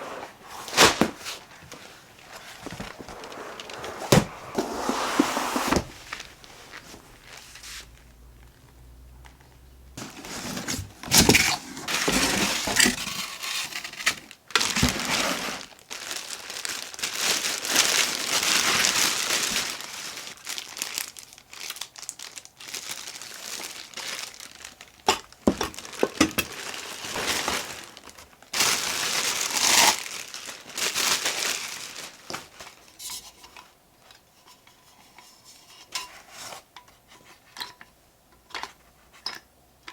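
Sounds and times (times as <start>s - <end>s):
material crinkling and rustling: 0.0s - 13.5s, 14.3s - 35.2s.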